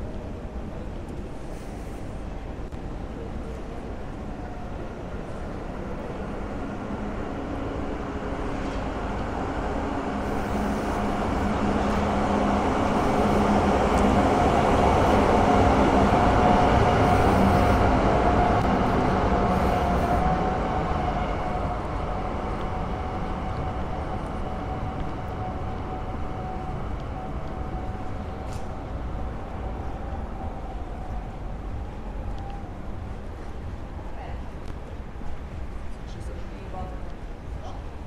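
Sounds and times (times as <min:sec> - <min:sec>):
rail vehicle rumbling past: 0:00.0 - 0:38.0
steady whine: 0:05.8 - 0:32.6.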